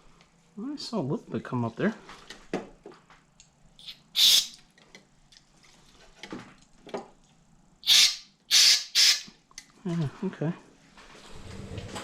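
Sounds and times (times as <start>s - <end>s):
aerosol spray hissing: 3.8s - 4.5s.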